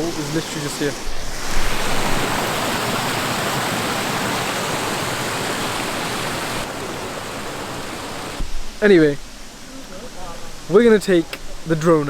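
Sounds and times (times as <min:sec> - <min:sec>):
waterfall roaring: 0:00.0 - 0:08.4.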